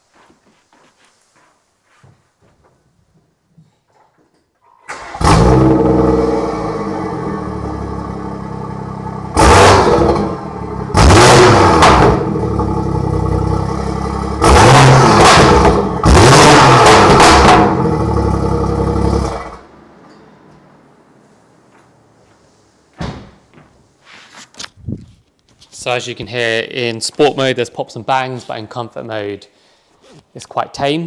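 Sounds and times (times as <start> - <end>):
car engine idling and revving: 5.1 - 19.7.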